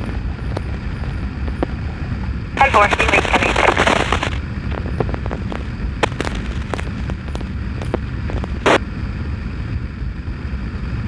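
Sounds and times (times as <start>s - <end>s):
sharp clicks and pops: 2.6s - 8.8s.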